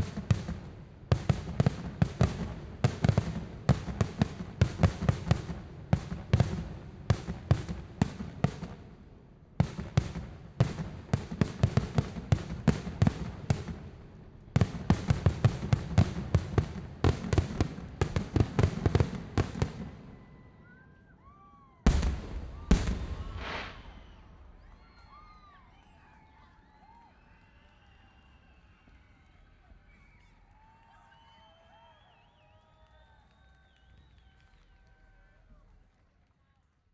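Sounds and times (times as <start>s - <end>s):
fireworks barrages: 0.0s - 26.0s
loud firework boom: 21.9s - 25.2s.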